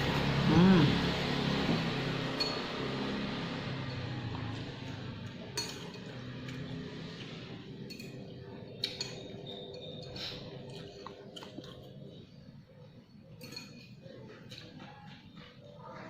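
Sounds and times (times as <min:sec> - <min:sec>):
cutlery clinking against a bowl: 0:03.8 - 0:06.9, 0:07.6 - 0:11.9, 0:13.2 - 0:15.1.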